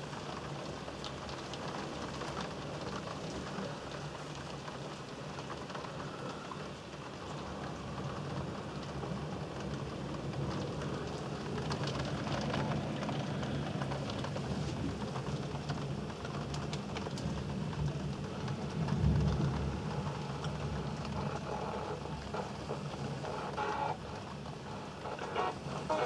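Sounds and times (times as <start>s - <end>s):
heavy rain falling: 1.3s - 26.0s
low rumble of thunder: 17.3s - 21.4s.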